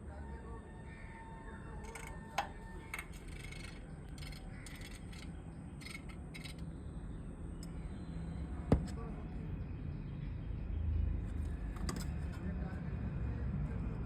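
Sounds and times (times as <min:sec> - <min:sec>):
steady low hum: 0:00.8 - 0:14.0
woodpecker pecking: 0:01.8 - 0:06.7.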